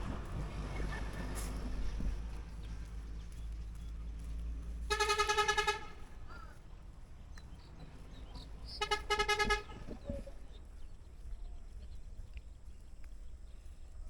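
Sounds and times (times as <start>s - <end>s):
buzzing vehicle horn: 4.9s - 6.2s, 8.7s - 10.0s.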